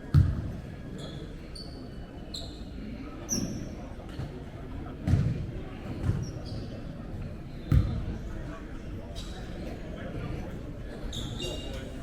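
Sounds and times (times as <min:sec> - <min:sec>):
basketball bouncing: 0:00.1 - 0:00.4
shoes squeaking on court floor: 0:01.0 - 0:02.6, 0:11.1 - 0:12.0.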